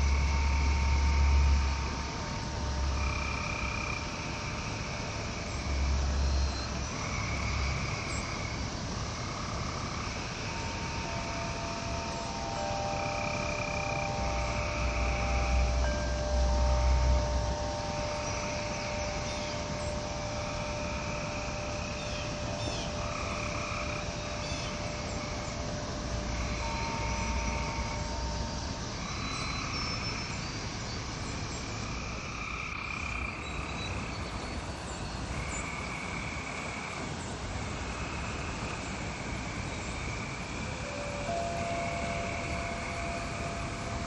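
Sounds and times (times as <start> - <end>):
frogs calling in trills: 0.0 - 44.0
wind chime tones: 11.0 - 28.6, 40.7 - 44.0.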